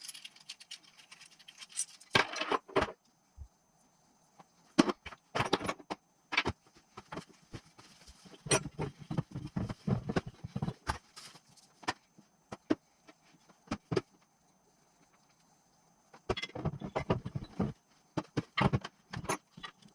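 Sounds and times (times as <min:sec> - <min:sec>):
metal parts and tools clinking: 0:00.0 - 0:02.8.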